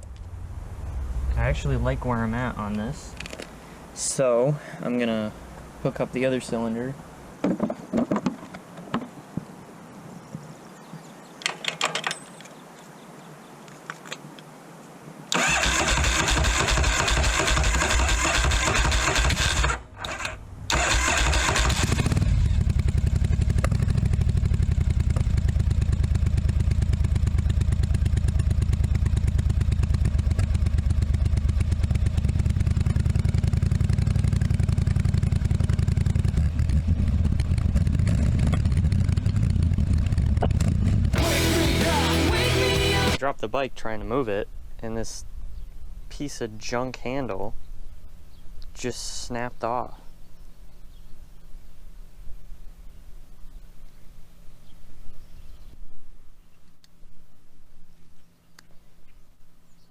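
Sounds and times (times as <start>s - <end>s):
motorcycle engine starting and idling: 0.0s - 3.7s, 15.3s - 43.2s.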